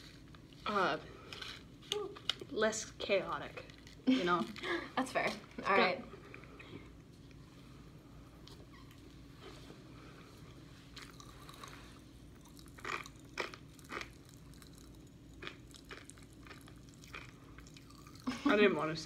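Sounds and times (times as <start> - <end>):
chewing popping candy: 11.0 - 18.3.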